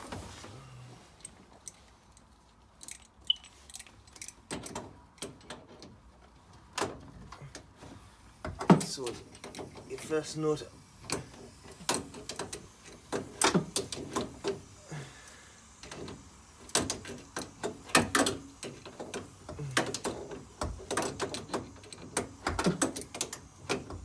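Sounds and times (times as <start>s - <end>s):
spanner clicking on pipe nuts: 8.4s - 10.2s, 11.0s - 14.8s, 15.7s - 24.0s.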